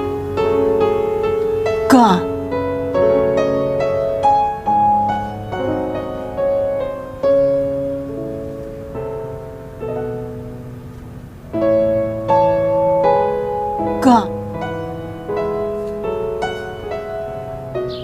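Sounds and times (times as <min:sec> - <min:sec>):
slow solo piano: 0:00.0 - 0:18.0.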